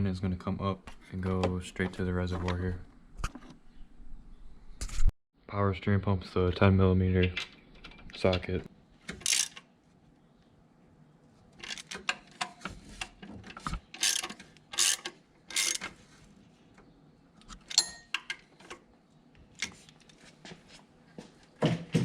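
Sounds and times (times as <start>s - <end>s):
ratchet wrench clicking: 9.2s - 9.6s, 14.0s - 15.8s
metallic ring: 17.7s - 18.2s.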